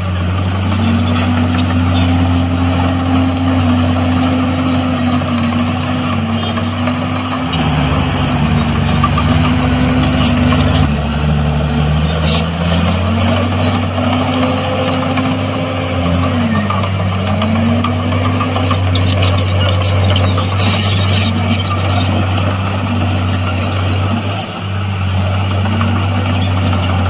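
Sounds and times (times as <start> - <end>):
deeper second engine: 0.0 - 27.0
heavy diesel engine running: 0.0 - 27.0.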